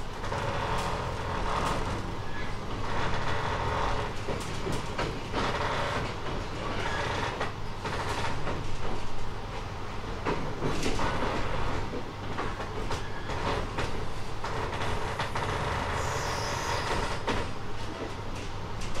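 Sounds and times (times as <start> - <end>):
train motor hum: 0.0 - 12.7
train rolling noise: 0.0 - 19.0.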